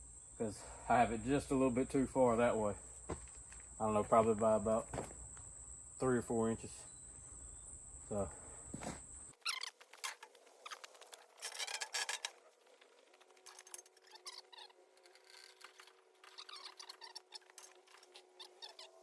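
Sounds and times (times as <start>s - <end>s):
log scraping and rubbing: 9.6s - 19.0s.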